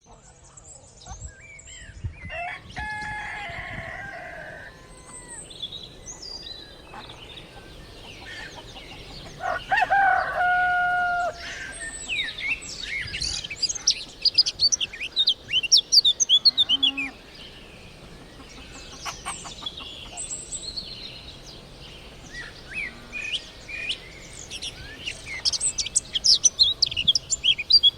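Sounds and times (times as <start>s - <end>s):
rooster crowing: 2.3s - 5.5s, 9.2s - 12.4s
small birds chirping: 4.6s - 27.9s.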